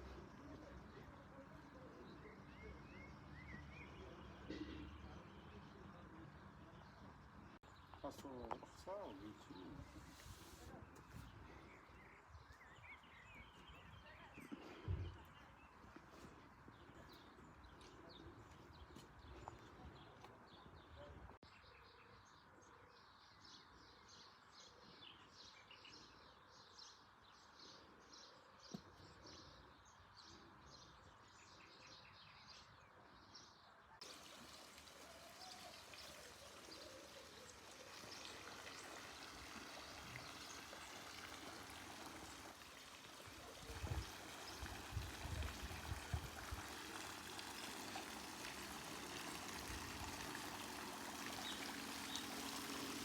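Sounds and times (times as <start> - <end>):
birds chirping: 0.0 - 53.0
running water: 34.0 - 53.0.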